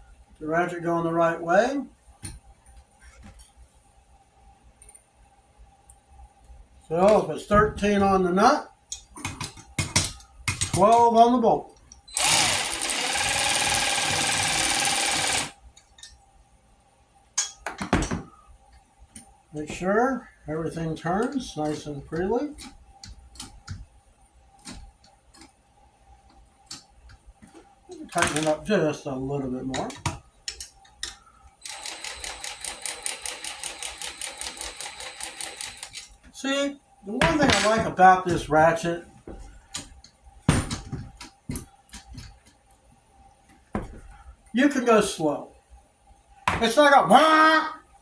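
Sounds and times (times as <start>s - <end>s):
faint motor whine: 11.2s - 17.2s, 18.2s - 46.4s
cordless ratchet motor whine: 12.1s - 15.6s, 31.6s - 36.1s.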